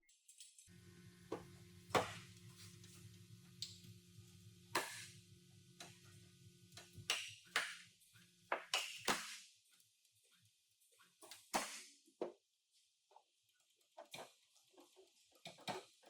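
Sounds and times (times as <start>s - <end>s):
low steady hum: 0.7s - 7.1s.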